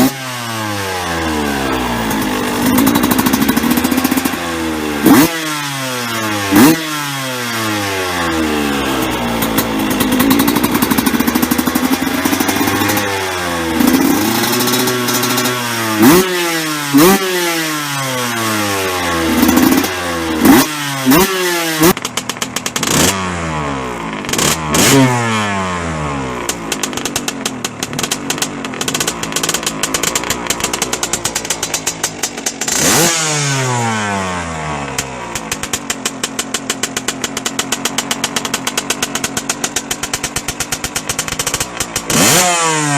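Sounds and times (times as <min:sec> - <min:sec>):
engine idling with popping: 0:00.0 - 0:05.3, 0:07.8 - 0:16.3, 0:19.1 - 0:24.8, 0:26.2 - 0:33.0, 0:34.7 - 0:42.4
two-stroke engine revving: 0:00.0 - 0:42.9.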